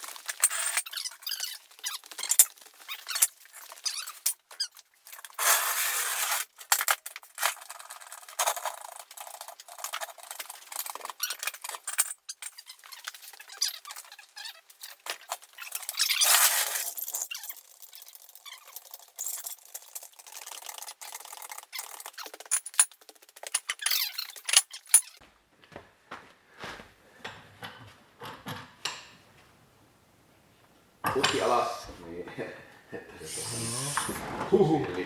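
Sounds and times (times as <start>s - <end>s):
tools clicking and rattling: 0.0s - 5.3s, 16.9s - 25.2s
scraping hiss: 33.2s - 34.8s.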